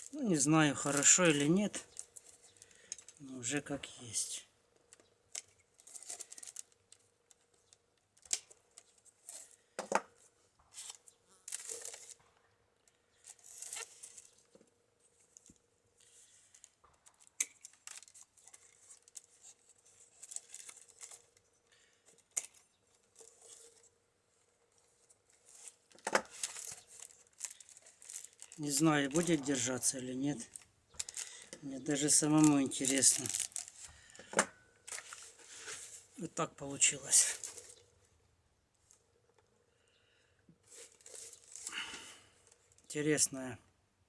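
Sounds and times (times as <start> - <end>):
basket rustling and crackling: 0.0 - 3.2, 5.4 - 9.7, 10.7 - 12.3, 13.2 - 21.4, 22.1 - 36.2, 36.8 - 37.9, 40.6 - 42.8.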